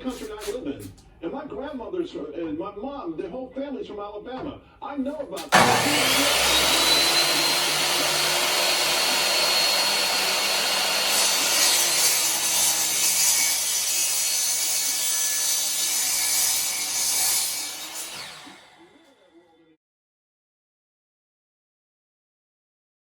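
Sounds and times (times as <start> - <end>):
power saw motor whine: 5.4 - 13.1, 17.7 - 19.3
saw cutting metal: 5.4 - 19.2.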